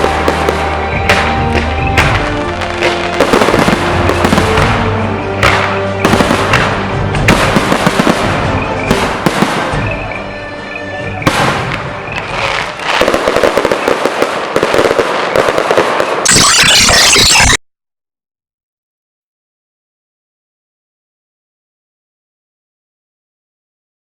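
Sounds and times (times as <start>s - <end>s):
music: 0.0s - 14.0s
fireworks bangs: 0.0s - 17.4s
fireworks crackling: 0.0s - 17.5s.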